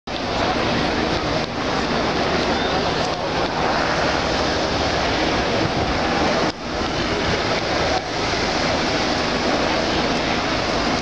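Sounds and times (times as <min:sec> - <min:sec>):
dense rushing noise: 0:00.1 - 0:11.0
truck engine running: 0:00.1 - 0:11.0.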